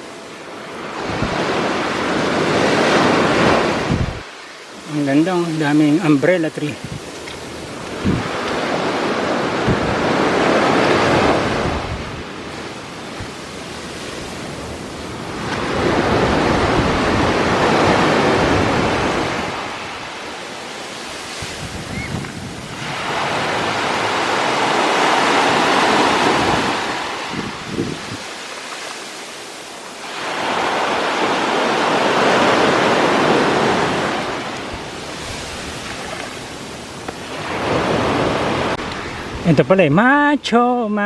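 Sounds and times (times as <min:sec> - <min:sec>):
sea waves breaking: 0:00.0 - 0:40.4
wind buffeting microphone: 0:00.9 - 0:04.5, 0:06.6 - 0:28.3.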